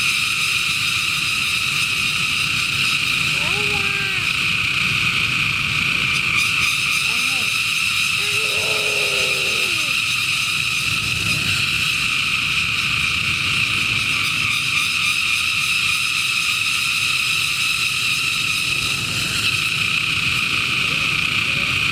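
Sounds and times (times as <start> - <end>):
cicadas singing: 2.3 - 10.2.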